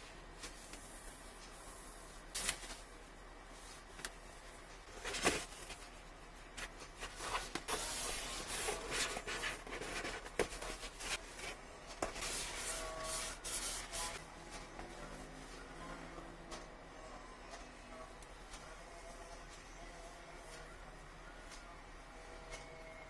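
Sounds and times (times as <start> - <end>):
cardboard and plastic rustling: 2.2 - 2.9, 3.6 - 14.9.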